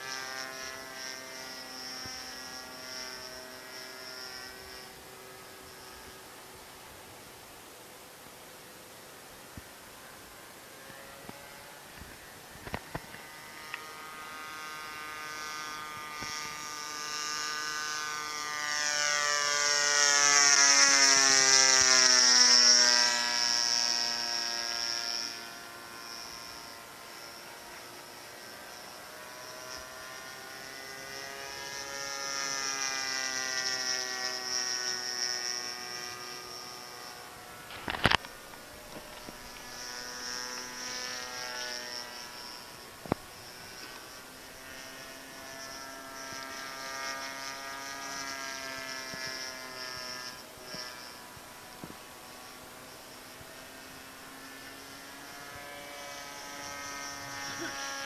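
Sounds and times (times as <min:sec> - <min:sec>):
model airplane engine passing: 0:00.0 - 0:58.0.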